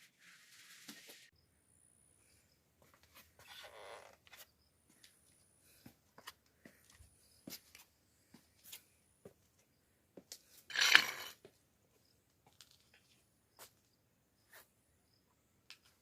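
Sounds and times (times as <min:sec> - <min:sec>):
soft rustle: 0:00.0 - 0:01.3.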